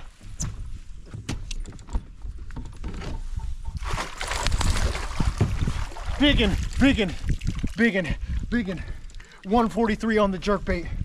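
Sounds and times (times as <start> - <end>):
fish splashing water: 3.8 - 7.8.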